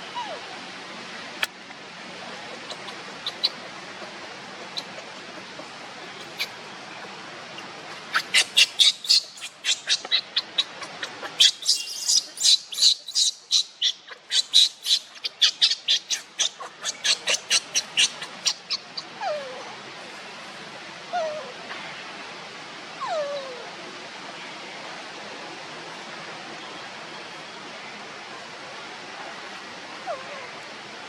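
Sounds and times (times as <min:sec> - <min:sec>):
monkey falling cries: 0:02.5 - 0:03.6, 0:07.9 - 0:19.6
baby monkey squealing: 0:02.6 - 0:03.6, 0:04.7 - 0:05.0, 0:06.2 - 0:06.6, 0:07.9 - 0:19.5.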